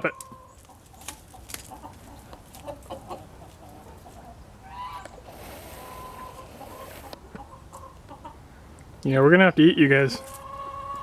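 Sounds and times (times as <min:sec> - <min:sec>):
chickens clucking and squawking: 0:00.0 - 0:08.8, 0:10.0 - 0:11.0
high hiss: 0:05.2 - 0:07.2.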